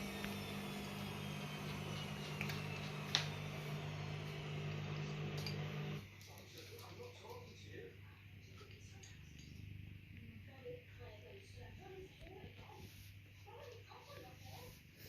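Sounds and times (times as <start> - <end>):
washing machine humming: 0.0 - 6.1.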